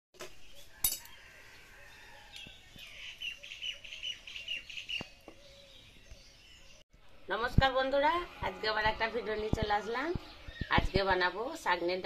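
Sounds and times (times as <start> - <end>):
bird chirping: 0.2 - 7.3, 8.4 - 12.0.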